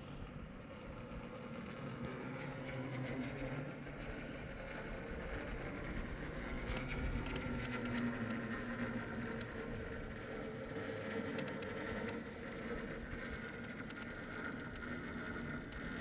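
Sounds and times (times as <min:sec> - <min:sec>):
light ticks: 0:05.5 - 0:16.0.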